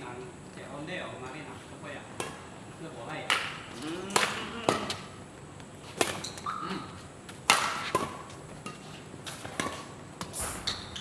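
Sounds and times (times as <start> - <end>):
rackets striking shuttlecock: 3.2 - 5.1, 7.4 - 11.0
shoes squeaking on floor: 6.1 - 7.0.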